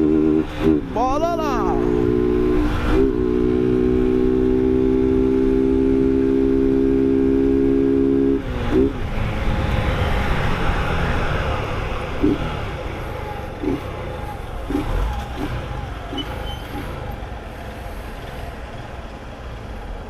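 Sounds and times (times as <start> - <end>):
road and wind noise: 0.0 - 20.0.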